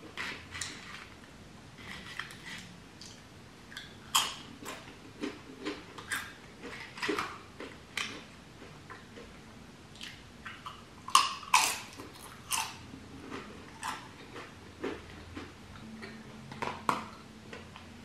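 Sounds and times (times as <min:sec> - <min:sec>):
person chewing and smacking: 0:01.9 - 0:17.9.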